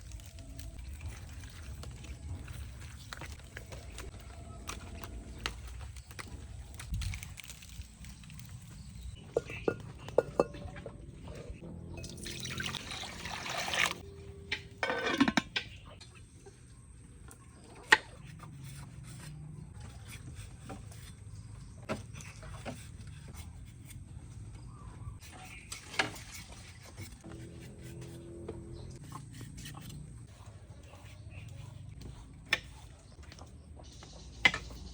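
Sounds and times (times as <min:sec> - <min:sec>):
water pouring: 0:12.0 - 0:14.0.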